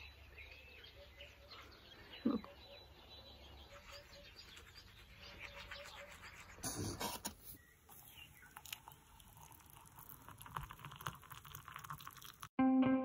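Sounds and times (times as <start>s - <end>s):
birds chirping and twittering: 0.0s - 9.2s.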